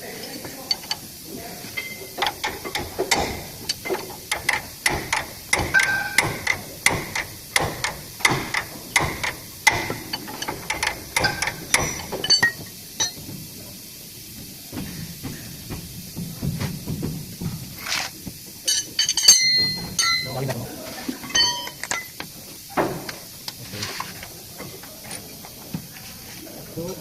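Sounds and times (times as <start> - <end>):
hammer striking metal: 1.8 - 13.2.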